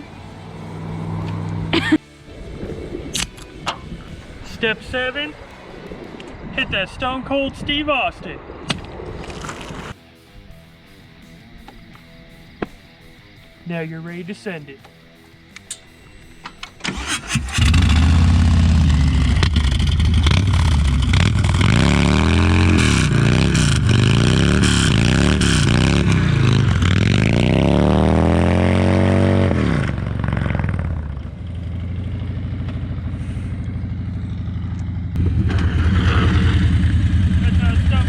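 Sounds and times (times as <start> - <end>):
motorcycle engine revving and idling: 0.0 - 1.9, 16.9 - 38.0.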